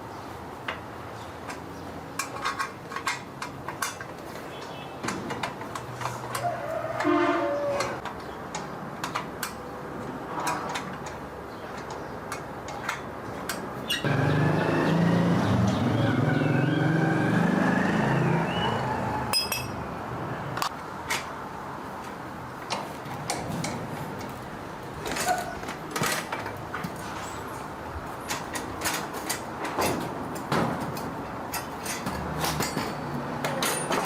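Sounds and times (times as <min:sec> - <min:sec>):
hand tools clinking on metal: 0:01.4 - 0:09.6, 0:19.3 - 0:19.8, 0:28.3 - 0:34.0.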